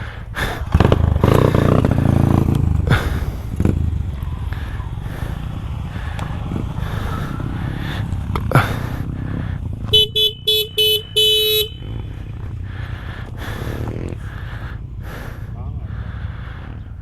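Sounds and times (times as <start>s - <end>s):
motorcycle engine running: 0.0s - 17.0s
road noise: 0.0s - 17.0s
vehicle horn toots: 9.8s - 12.4s.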